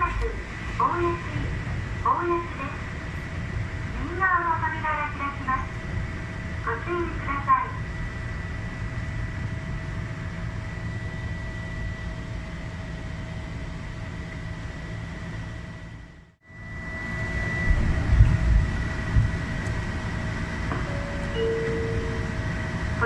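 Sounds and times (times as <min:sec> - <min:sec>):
faint constant whine: 0:00.0 - 0:23.0
train low rumble: 0:00.0 - 0:23.0
heavy low thumps: 0:17.6 - 0:23.0.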